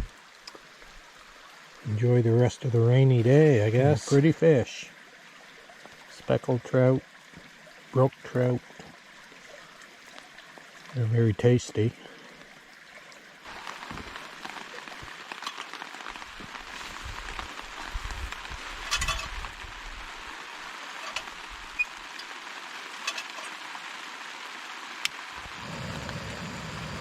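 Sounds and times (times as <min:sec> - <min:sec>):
steady rain hiss: 0:00.0 - 0:27.0
raindrops ticking: 0:05.7 - 0:27.0.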